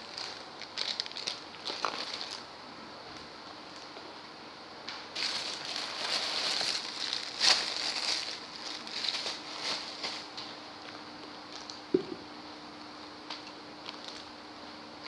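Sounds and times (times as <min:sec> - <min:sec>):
packaging crinkling and rustling: 0:00.0 - 0:02.5, 0:05.2 - 0:10.6, 0:13.8 - 0:14.3.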